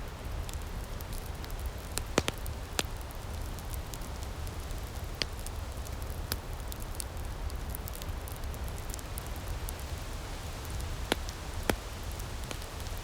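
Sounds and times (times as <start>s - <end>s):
low fire rumble: 0.0s - 13.0s
wood fire crackling: 0.0s - 13.0s
loud fire pops: 0.5s - 9.9s, 10.6s - 13.0s.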